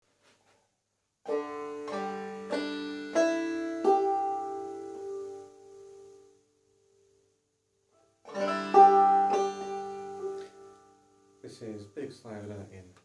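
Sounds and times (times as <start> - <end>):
banjo notes plucked: 1.2 - 6.3, 8.2 - 11.1.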